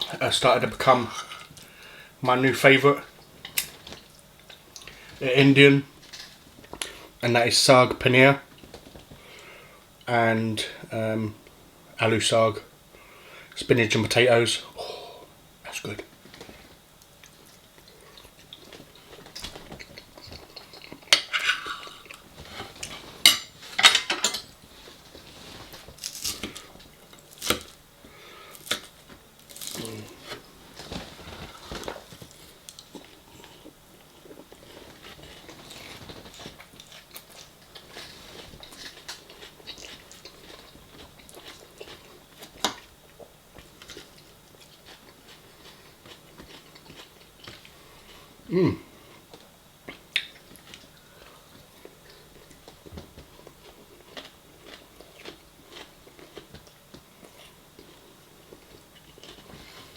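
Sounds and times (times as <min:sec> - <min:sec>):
chewing: 0:16.3 - 0:23.2, 0:24.8 - 0:48.3, 0:49.0 - 0:59.9
cutlery clinking against dishes: 0:23.3 - 0:24.6.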